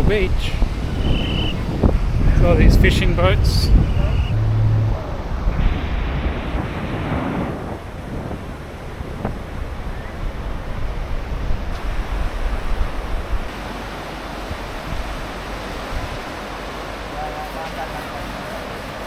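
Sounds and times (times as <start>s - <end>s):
surf washing onto beach: 0.0s - 19.0s
wind buffeting microphone: 0.0s - 19.0s.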